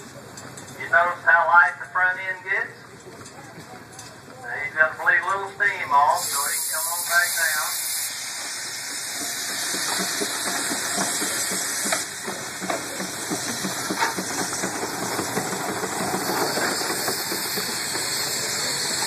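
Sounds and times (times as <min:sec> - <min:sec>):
steam engine chuffing: 0:02.9 - 0:19.0
steam hissing: 0:04.5 - 0:19.0.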